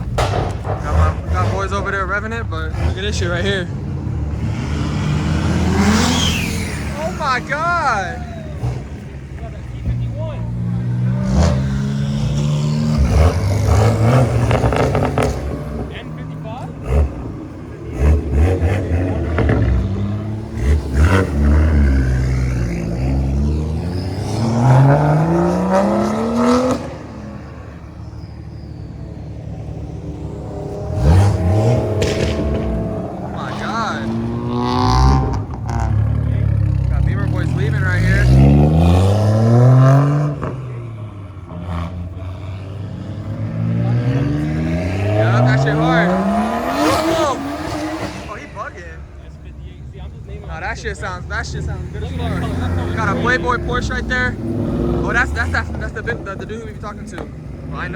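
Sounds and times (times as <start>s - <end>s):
engine pops: 0.0s - 2.0s, 31.7s - 34.4s
car engine revving hard: 0.0s - 49.2s, 50.8s - 57.9s.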